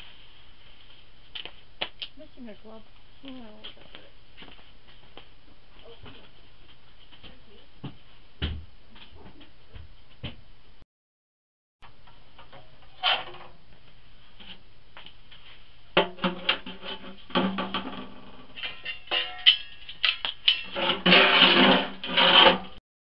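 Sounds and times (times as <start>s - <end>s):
metal clanking and scraping: 16.0s - 22.8s.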